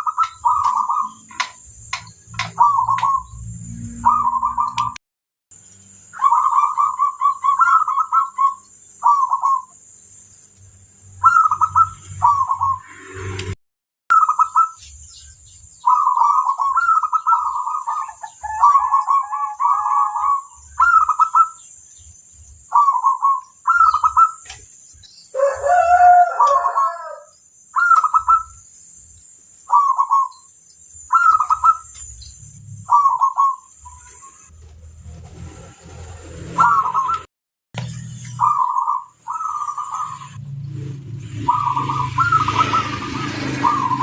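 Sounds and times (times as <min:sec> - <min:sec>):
dove trilled cooing: 0:00.0 - 0:05.0, 0:06.2 - 0:09.7, 0:11.2 - 0:12.8, 0:15.8 - 0:21.7, 0:22.7 - 0:24.6, 0:25.3 - 0:28.6, 0:29.7 - 0:30.5, 0:31.1 - 0:34.5, 0:36.6 - 0:37.3, 0:38.3 - 0:40.4, 0:41.3 - 0:44.0
rooster crowing: 0:18.0 - 0:20.5, 0:25.3 - 0:27.4.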